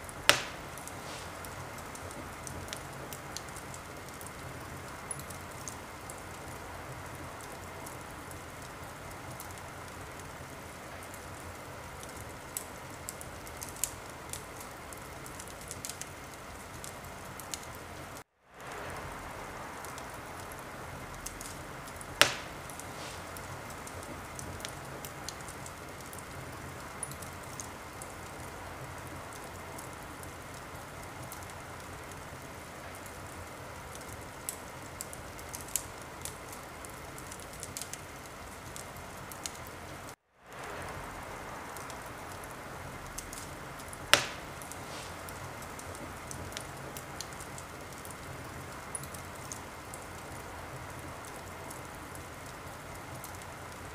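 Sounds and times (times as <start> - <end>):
fire hissing and crackling: 0.0 - 53.9
loud pop of fire: 0.1 - 4.2, 21.2 - 25.6, 43.1 - 47.4.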